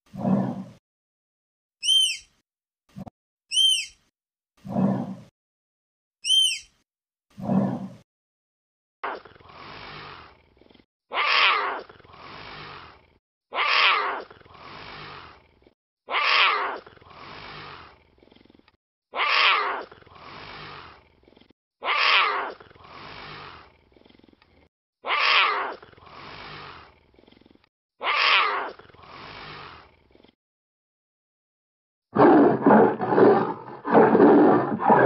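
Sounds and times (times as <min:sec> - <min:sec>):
big cat roaring: 0:32.2 - 0:35.0.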